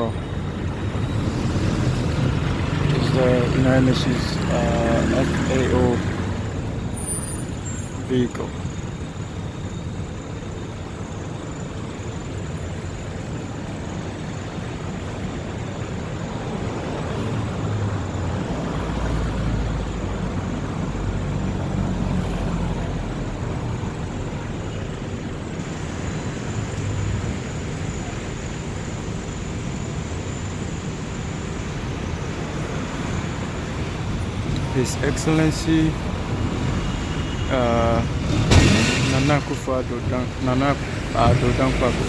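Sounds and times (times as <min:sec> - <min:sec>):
road traffic: 0:00.0 - 0:42.0
low engine rumble: 0:22.7 - 0:42.0.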